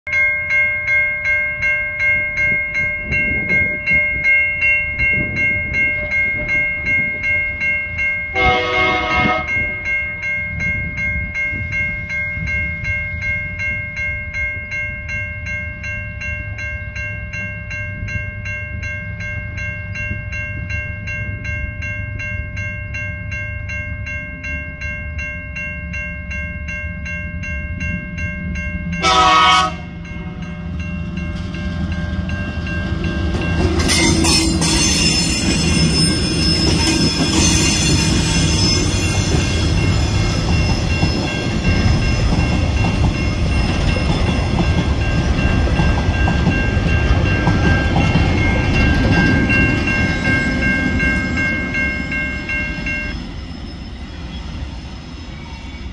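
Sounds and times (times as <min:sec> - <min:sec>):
level crossing bell ringing: 0:00.1 - 0:53.2
locomotive horn blast: 0:08.3 - 0:09.7, 0:29.0 - 0:30.4.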